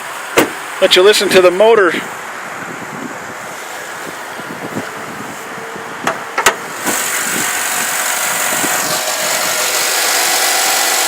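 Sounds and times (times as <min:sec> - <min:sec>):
sharp knocks: 0:00.4 - 0:00.6.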